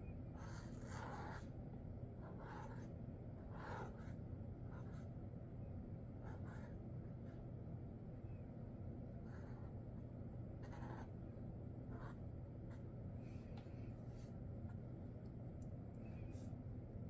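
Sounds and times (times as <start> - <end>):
low steady hum: 0.0 - 17.0
marker scratching on paper: 0.4 - 1.4, 2.3 - 2.9, 3.5 - 5.0, 6.2 - 6.7, 10.6 - 11.1, 11.9 - 12.2.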